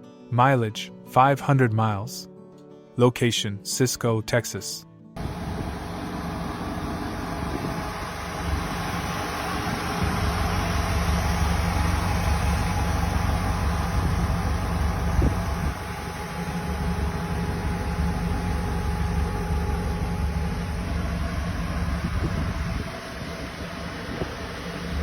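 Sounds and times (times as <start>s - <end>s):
car engine idling: 5.2s - 25.0s.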